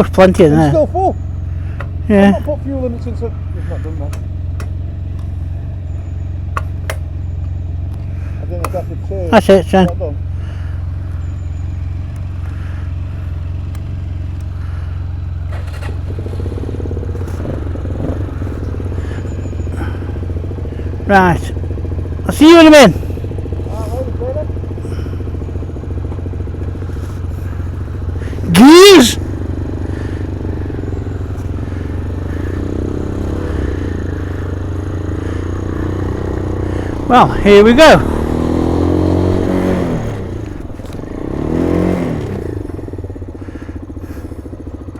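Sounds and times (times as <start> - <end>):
motorcycle engine idling: 0.0 - 44.9
light clicks: 13.6 - 14.5.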